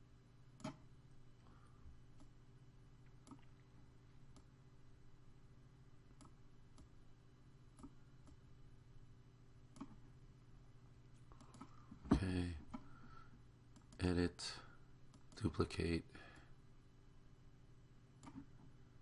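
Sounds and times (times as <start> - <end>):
low steady hum: 0.0 - 19.0
computer mouse clicks: 0.6 - 0.8, 6.1 - 6.9, 7.7 - 8.4, 9.7 - 10.0, 11.3 - 11.8, 13.7 - 14.0, 18.2 - 18.5.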